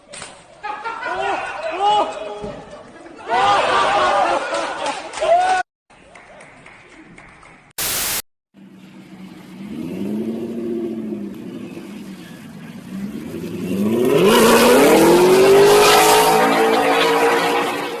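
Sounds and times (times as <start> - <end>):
engine revving: 9.0 - 18.0.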